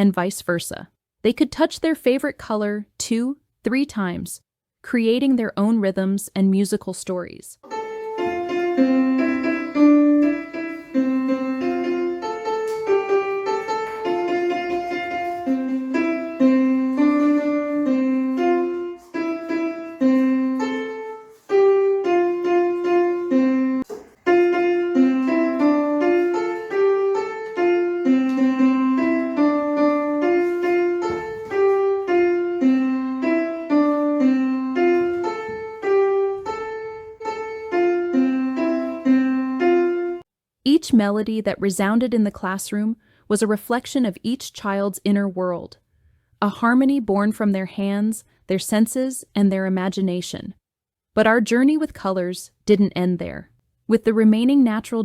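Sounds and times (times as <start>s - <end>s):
electronic piano notes: 7.6s - 40.3s.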